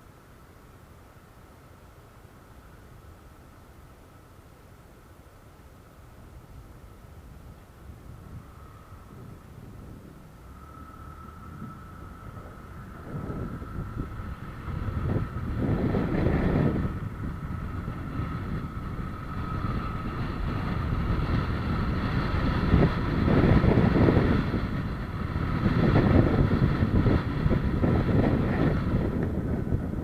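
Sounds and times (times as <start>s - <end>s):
wind rumbling on microphone: 6.2s - 30.0s
vehicle engine running: 7.3s - 30.0s.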